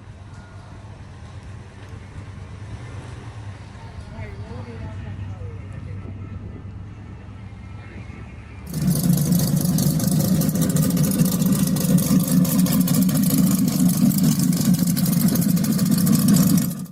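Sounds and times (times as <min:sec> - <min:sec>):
low engine hum: 0:00.0 - 0:16.9
car engine with pulsing exhaust: 0:08.1 - 0:16.9.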